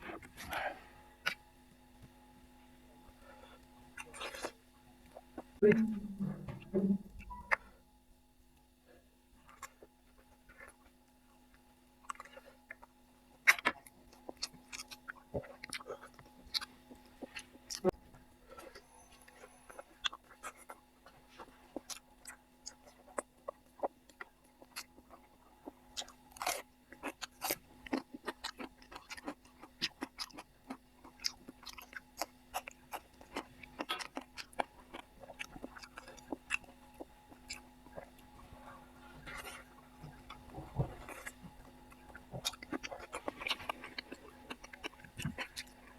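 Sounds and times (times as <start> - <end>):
person chewing food: 0.0 - 5.7, 6.4 - 45.9
food crunching: 3.2 - 5.9, 9.4 - 45.9.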